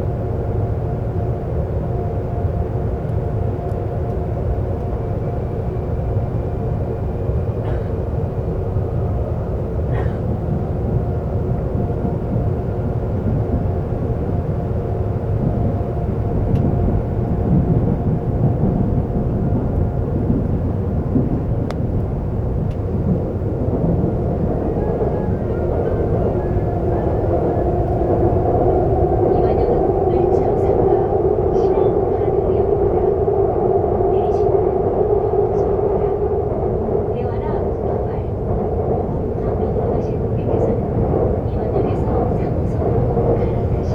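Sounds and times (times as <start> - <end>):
subway train rumbling: 0.0 - 43.9.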